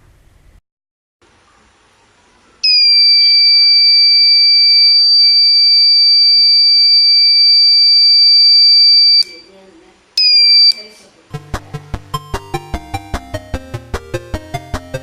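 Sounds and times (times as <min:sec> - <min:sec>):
high-pitched alarm buzzer tone: 0:02.6 - 0:09.4, 0:10.2 - 0:11.5.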